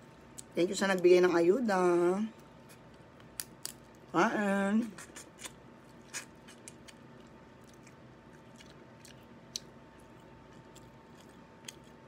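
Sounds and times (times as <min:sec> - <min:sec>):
faint chewing clicks: 0:05.2 - 0:12.0.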